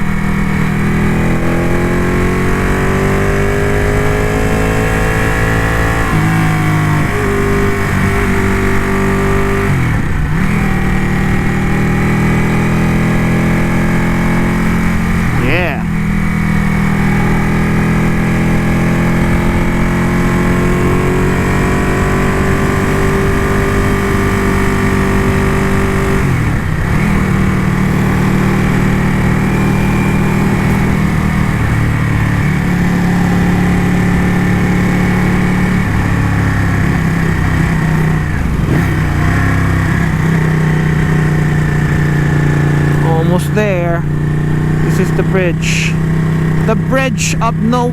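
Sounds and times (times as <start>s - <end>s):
motorcycle engine riding: 0.0s - 47.9s.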